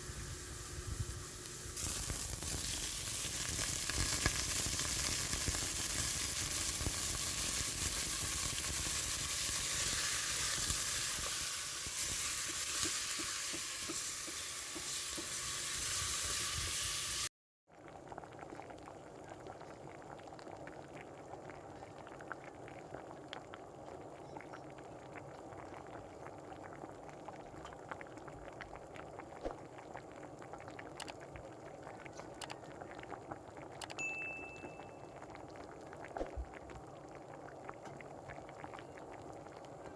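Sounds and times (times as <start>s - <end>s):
food sizzling in hot oil: 0.0s - 17.3s
liquid bubbling and popping: 1.7s - 15.4s, 17.7s - 34.0s, 34.6s - 39.9s.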